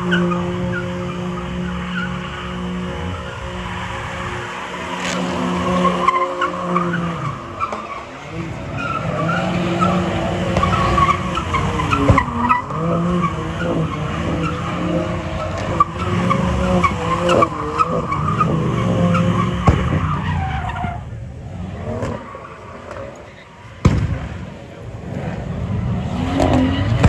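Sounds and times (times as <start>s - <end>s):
tyres screeching: 0.0s - 21.1s
car engine revving: 0.0s - 27.0s
sharp cracks: 22.0s - 25.2s.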